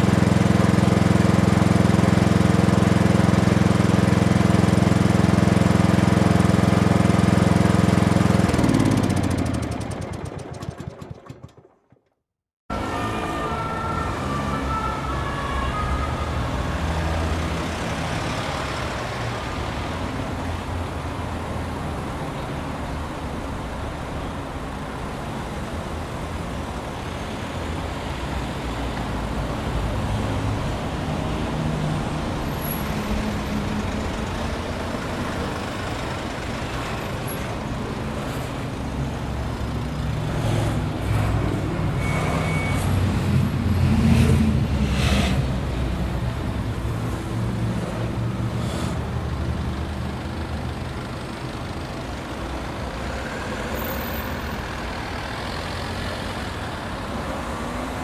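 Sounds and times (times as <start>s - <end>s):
cars and trucks driving past: 12.7s - 58.0s.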